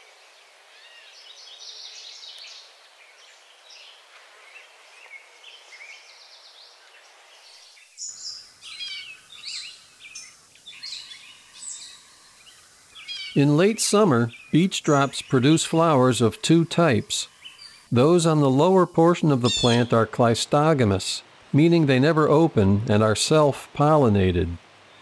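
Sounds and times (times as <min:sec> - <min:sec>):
faint background hiss: 0:00.0 - 0:25.0
small birds chirping: 0:00.7 - 0:20.7.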